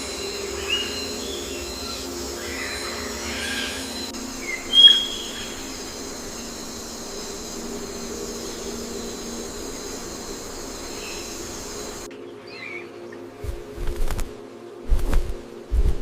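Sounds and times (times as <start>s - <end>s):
bird chirping call: 0.0s - 7.4s.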